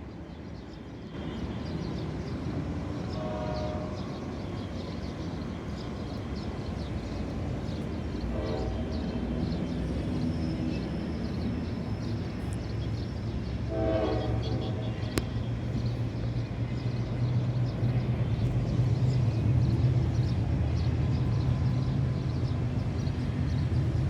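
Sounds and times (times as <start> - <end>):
diesel locomotive rumble: 1.1 - 24.0
locomotive horn blasts: 3.2 - 4.2, 8.3 - 9.1, 13.7 - 14.9.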